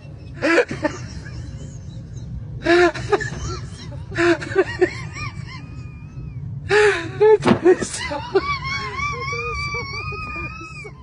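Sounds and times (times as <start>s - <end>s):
low rumble: 0.0s - 11.0s
high-pitched cries: 4.6s - 7.2s, 8.0s - 11.0s.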